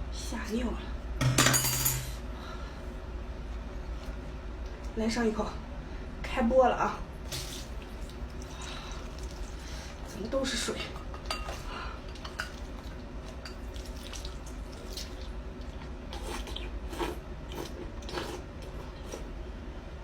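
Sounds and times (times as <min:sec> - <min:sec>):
wet slurps and small splashes: 0:07.3 - 0:10.2, 0:12.5 - 0:19.3.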